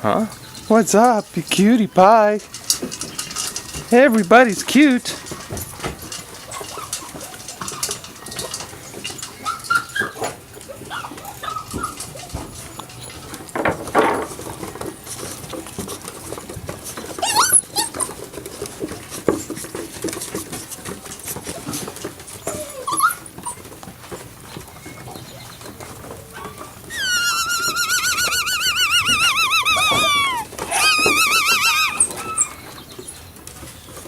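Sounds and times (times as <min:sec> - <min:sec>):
puppies whimpering: 0:06.1 - 0:13.4, 0:16.9 - 0:19.6, 0:21.3 - 0:33.3
puppy whining: 0:06.4 - 0:13.3, 0:16.9 - 0:19.4, 0:21.4 - 0:33.1
puppy yelps: 0:09.4 - 0:12.5, 0:17.2 - 0:18.2, 0:22.4 - 0:23.8, 0:26.4 - 0:32.6.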